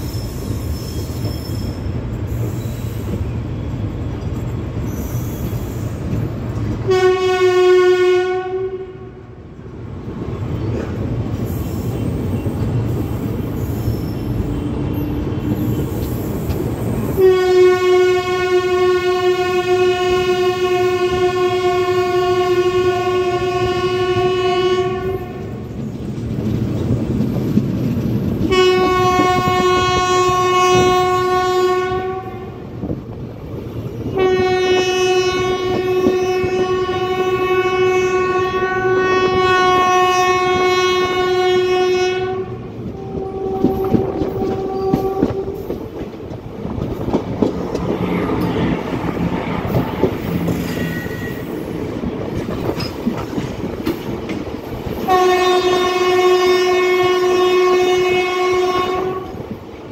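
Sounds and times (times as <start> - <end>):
train wheels clickety-clack: 0.0 - 7.0, 10.0 - 17.9, 22.6 - 31.4, 32.7 - 59.9
goods train passing alongside: 0.0 - 59.9
train horn blasts: 6.8 - 9.4, 17.1 - 25.7, 28.4 - 32.8, 34.1 - 45.8, 48.1 - 51.6, 55.0 - 59.6.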